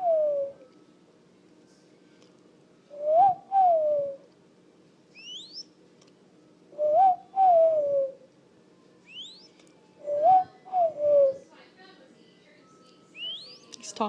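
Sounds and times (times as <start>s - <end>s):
bird cooing calls: 0.0s - 0.6s, 2.9s - 4.3s, 6.8s - 8.3s, 9.1s - 11.5s
high rising bird chirp: 5.1s - 5.8s, 9.0s - 11.4s, 13.1s - 13.8s.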